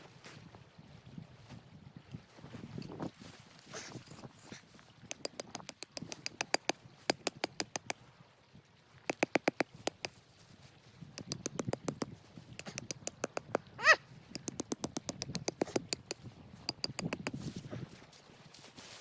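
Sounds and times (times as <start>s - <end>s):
rapid sharp clicks and crackles: 9.1s - 10.1s.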